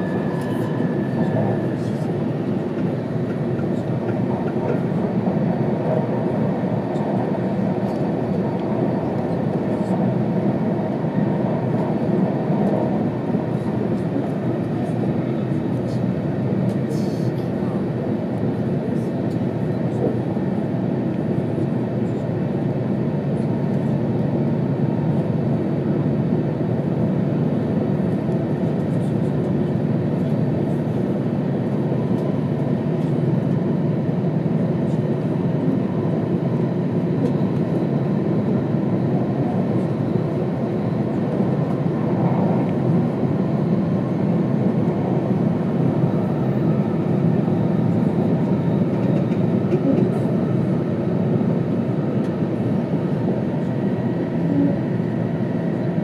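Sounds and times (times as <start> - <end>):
train cabin rumble: 0.0 - 22.3, 37.0 - 54.8.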